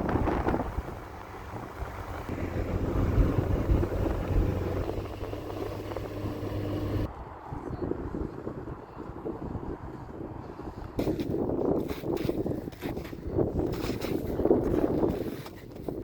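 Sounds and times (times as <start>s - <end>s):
low engine hum: 0.0s - 7.4s
rumbling wind-like noise: 0.0s - 16.0s.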